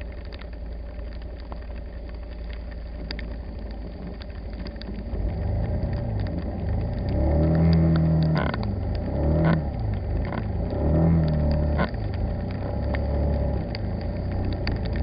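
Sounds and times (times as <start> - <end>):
car engine accelerating: 4.9 - 15.0.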